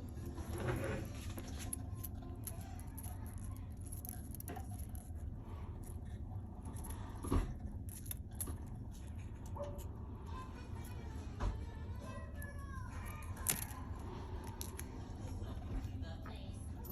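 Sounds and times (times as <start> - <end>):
steady low hum: 0.0 - 16.9
small clicks and handling noises: 0.4 - 9.9, 12.4 - 15.9.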